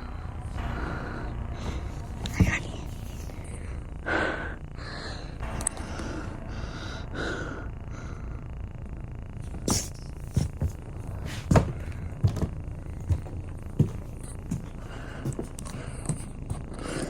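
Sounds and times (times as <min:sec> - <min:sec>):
steady low rumble: 0:00.0 - 0:17.0
knocks and thumps: 0:09.7 - 0:16.7.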